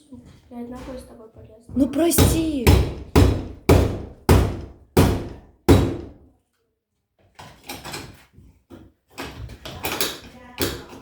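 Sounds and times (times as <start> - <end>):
heavy blows against door: 2.1 - 6.2.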